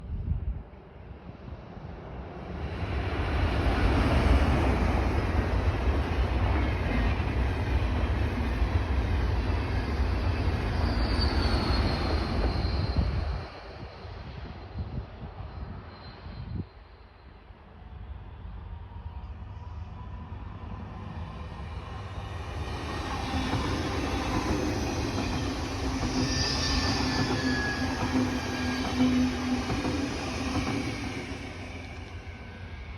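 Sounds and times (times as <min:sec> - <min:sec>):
train passing at speed: 0:00.0 - 0:32.9
high wheel squeal: 0:10.2 - 0:14.8, 0:15.4 - 0:17.3, 0:22.8 - 0:32.9.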